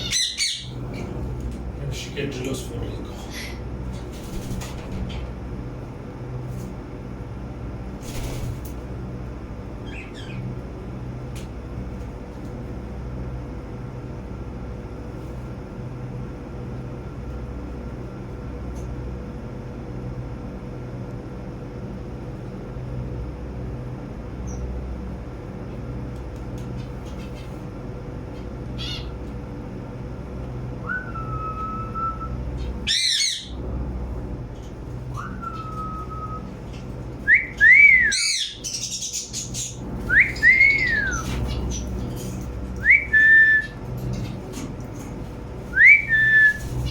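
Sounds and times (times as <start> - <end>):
parrot sharp calls: 0.0 - 0.8, 32.9 - 33.6, 37.7 - 41.8
steady low hum: 0.0 - 46.9
parrot whistles: 30.8 - 33.5, 35.1 - 36.5, 37.3 - 38.6, 40.1 - 41.3, 42.8 - 43.8, 45.7 - 46.7.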